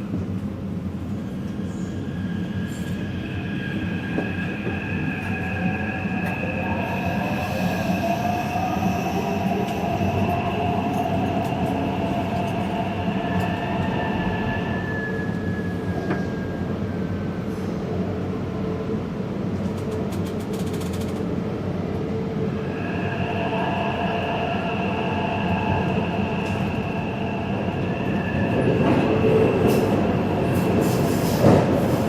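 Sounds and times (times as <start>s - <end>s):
train rumbling: 0.0s - 32.0s.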